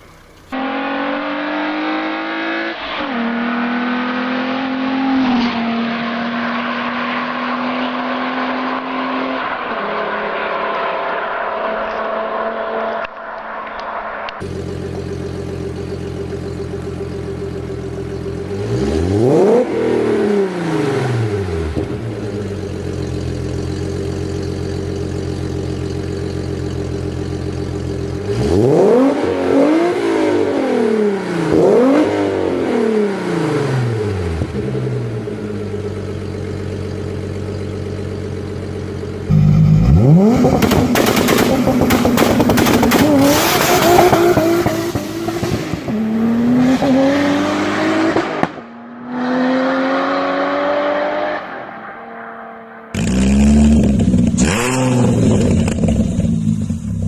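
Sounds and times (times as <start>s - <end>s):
engine running hard with cracks: 0.0s - 0.6s, 21.4s - 29.0s, 34.2s - 45.9s, 53.0s - 57.0s
car engine idling and revving: 0.0s - 57.0s.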